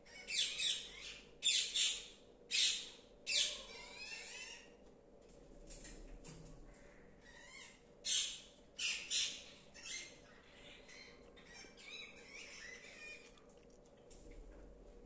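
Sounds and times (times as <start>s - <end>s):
wavering chirping calls: 0.1s - 4.6s, 7.3s - 13.3s
parrots squawking: 0.1s - 4.7s, 7.2s - 13.3s.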